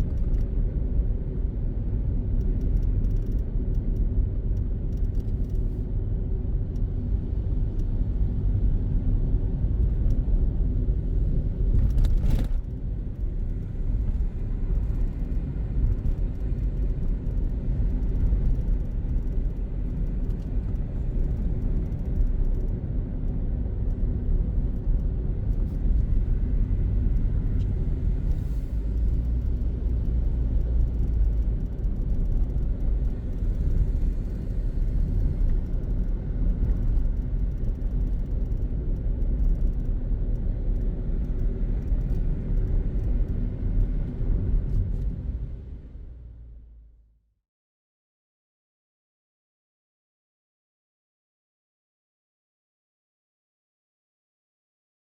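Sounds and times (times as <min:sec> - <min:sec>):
car engine and tyre noise: 0:00.0 - 0:47.0.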